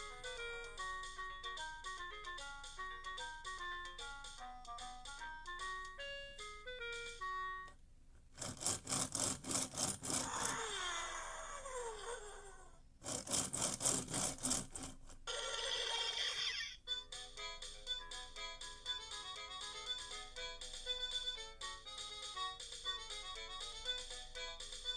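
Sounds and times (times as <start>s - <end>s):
toy beeping tune: 0.0s - 7.8s, 15.3s - 24.9s.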